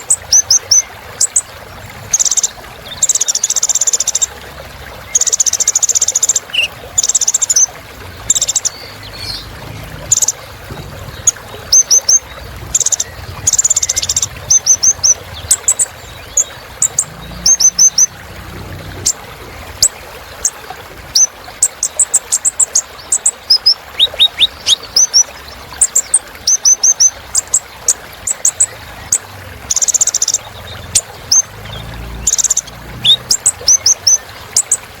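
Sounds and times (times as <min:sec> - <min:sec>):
sunbird singing: 0:02.1 - 0:04.3, 0:05.0 - 0:18.2, 0:19.8 - 0:34.8.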